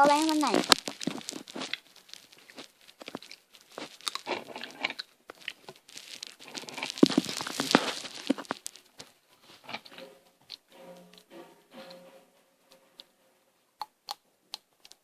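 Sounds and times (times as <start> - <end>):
crunching snack sticks: 0.0 - 10.7
plastic packet crinkling: 0.0 - 10.7.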